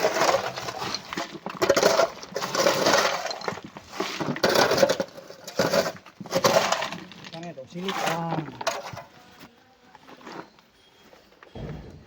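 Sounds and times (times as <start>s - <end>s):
stones clattering into truck: 0.0s - 9.1s.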